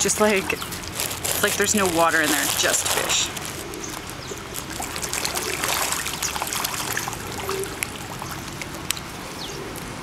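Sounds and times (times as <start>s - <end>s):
fish splashing at water surface: 4.5s - 8.9s.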